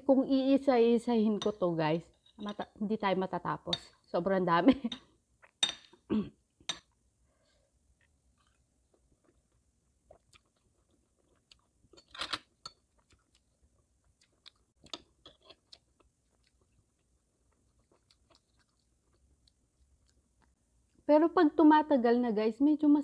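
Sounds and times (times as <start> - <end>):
wet chewing clicks: 8.4 - 12.0, 12.6 - 21.0.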